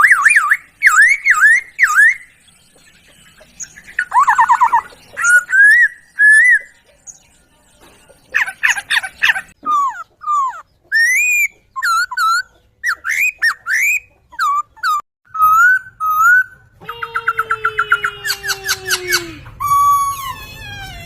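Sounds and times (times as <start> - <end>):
fast stuttering bird notes: 0.0 - 6.8
bird whistling song: 0.0 - 20.9.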